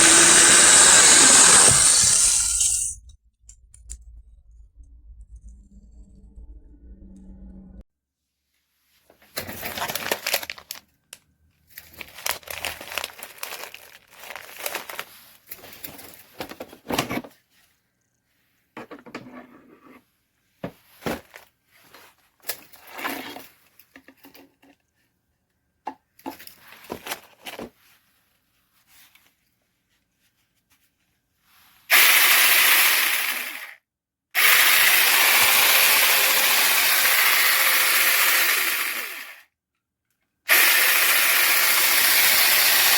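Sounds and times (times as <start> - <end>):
mini chainsaw electric motor: 0.0 - 3.0, 31.9 - 33.8, 34.4 - 39.5, 40.5 - 42.9
handling noises rustling and knocks: 8.9 - 10.8, 11.6 - 17.8, 18.7 - 25.2, 25.8 - 31.1.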